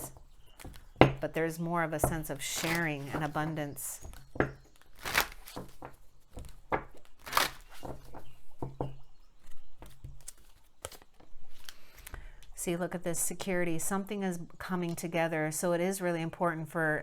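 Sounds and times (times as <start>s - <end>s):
cards being shuffled: 2.5s - 3.5s, 4.9s - 5.8s, 7.2s - 7.9s.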